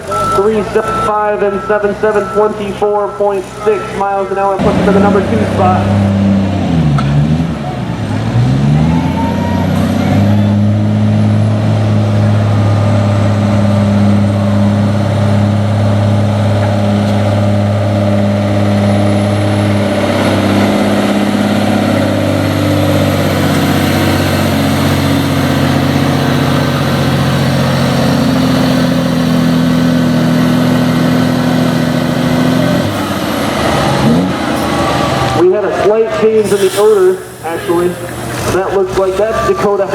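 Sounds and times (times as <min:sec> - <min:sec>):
truck diesel engine under load: 0:00.0 - 0:39.9.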